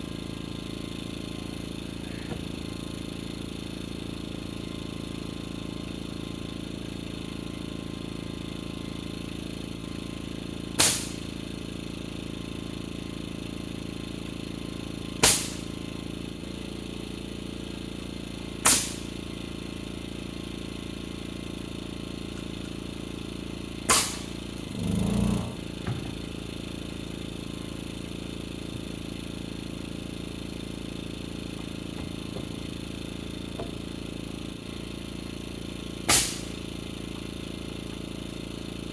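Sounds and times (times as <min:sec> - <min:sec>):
nail gun shots: 0:10.8 - 0:11.3, 0:15.2 - 0:15.8, 0:18.6 - 0:19.2, 0:23.9 - 0:24.4, 0:36.0 - 0:36.6
steady low hum: 0:17.3 - 0:37.2.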